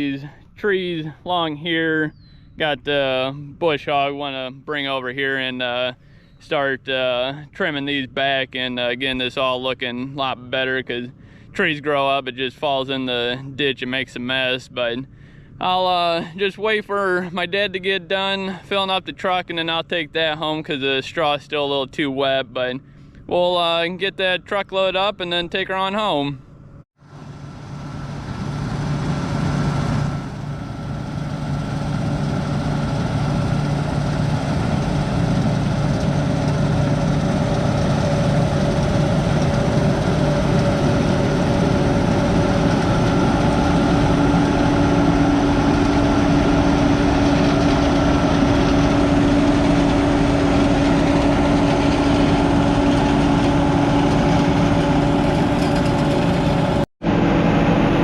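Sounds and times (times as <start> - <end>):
heavy diesel engine running: 26.6 - 58.0.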